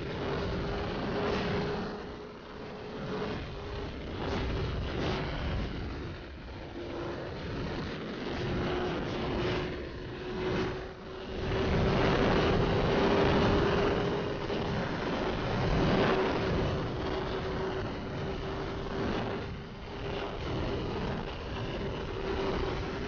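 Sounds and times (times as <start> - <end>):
wind rush on microphone: 0.0 - 23.0.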